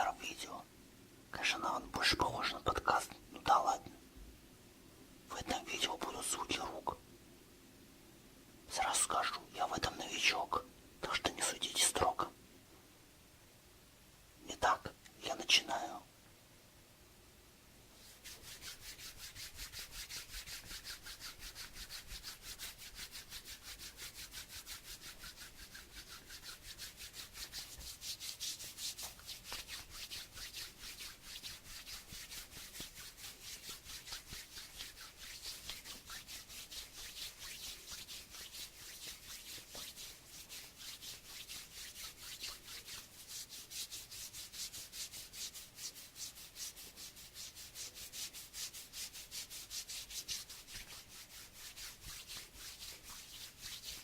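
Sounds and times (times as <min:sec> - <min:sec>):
hands rubbing together: 0:18.0 - 0:54.0.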